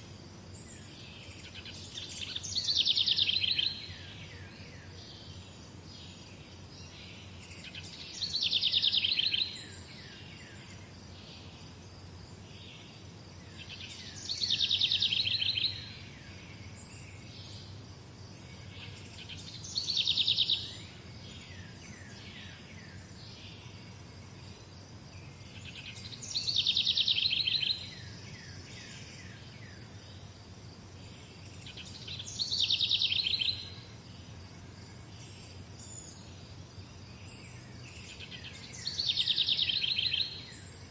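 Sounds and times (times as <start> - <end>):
songbird trilling: 1.4 - 3.9, 7.7 - 9.9, 13.6 - 15.8, 18.8 - 20.8, 25.6 - 28.2, 31.7 - 33.8, 38.1 - 40.6.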